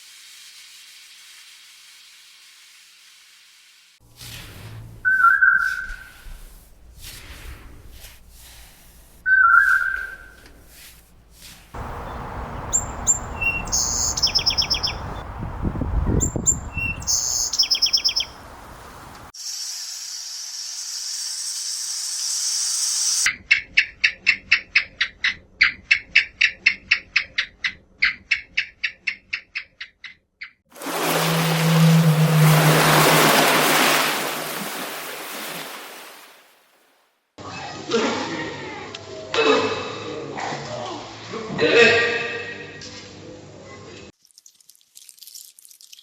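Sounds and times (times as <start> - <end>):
birds chirping and trilling: 5.0 - 6.1, 11.8 - 18.5
short repeated bird calls: 9.3 - 10.4, 11.8 - 15.1, 16.5 - 18.3.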